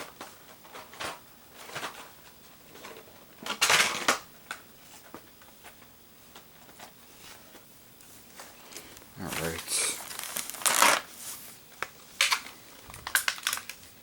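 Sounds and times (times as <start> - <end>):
plastic packaging rustling: 9.2 - 14.0.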